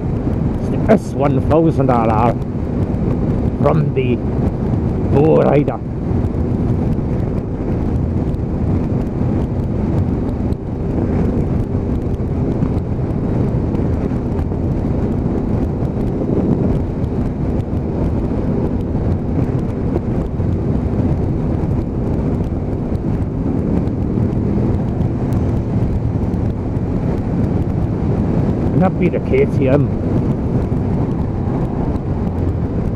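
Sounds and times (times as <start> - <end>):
motorcycle engine droning: 0.0 - 32.9
wind buffeting microphone: 0.0 - 32.9
motorcycles passing: 3.4 - 8.6, 22.7 - 32.9.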